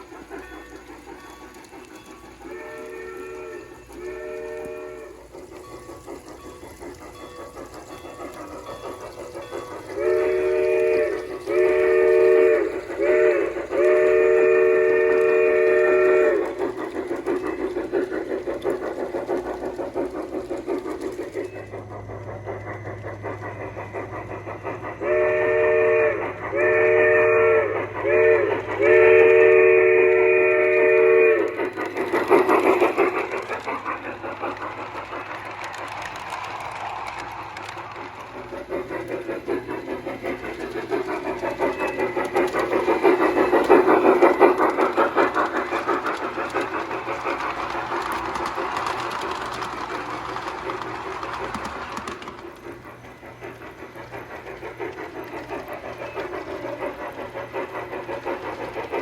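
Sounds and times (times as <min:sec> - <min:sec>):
locomotive chime whistle: 0:00.0 - 0:17.9, 0:25.0 - 0:31.9, 0:40.6 - 0:43.9
model steam locomotive chuffing: 0:00.0 - 0:59.0.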